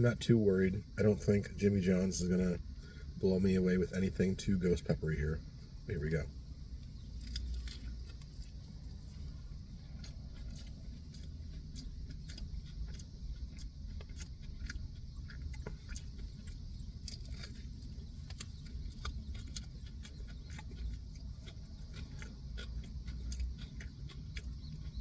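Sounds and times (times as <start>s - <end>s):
low steady hum: 0.0s - 25.0s
person chewing crunchy food: 5.4s - 25.0s.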